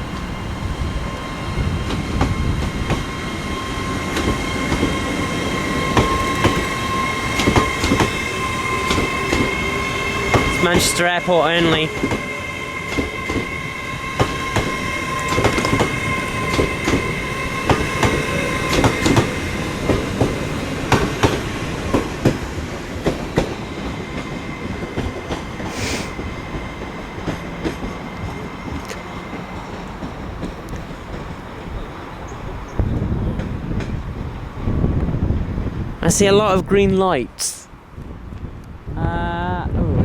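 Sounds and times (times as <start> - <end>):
train wheels knocking over rail joints: 14.2 - 31.4
short hiss: 25.7 - 26.2.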